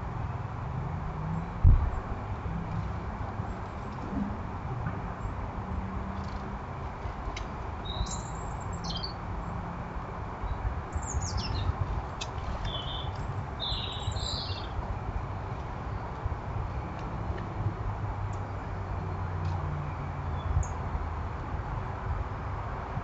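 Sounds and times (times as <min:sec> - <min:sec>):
steady low rumble: 0:00.0 - 0:05.9
small birds chirping: 0:07.8 - 0:09.2, 0:10.4 - 0:14.8.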